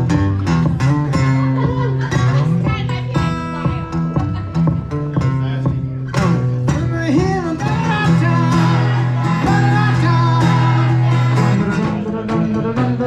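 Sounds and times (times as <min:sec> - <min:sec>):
live band playing: 0:00.0 - 0:13.0
person singing: 0:06.1 - 0:13.0.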